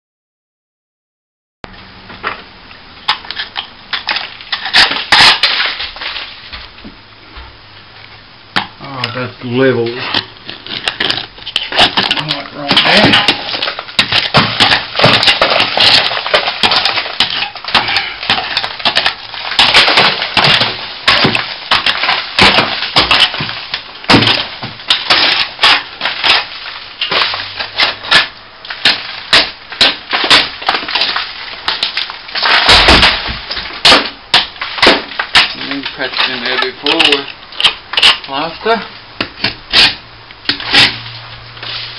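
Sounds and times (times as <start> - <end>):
crumbling plaster: 3.0 - 6.7, 8.8 - 41.9.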